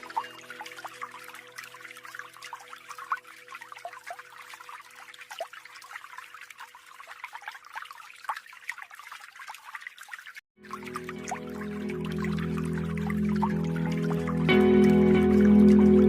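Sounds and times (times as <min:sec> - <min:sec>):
soft background music tones: 0:00.0 - 0:06.5, 0:10.6 - 0:16.0
small waterfall splashing: 0:00.0 - 0:16.0.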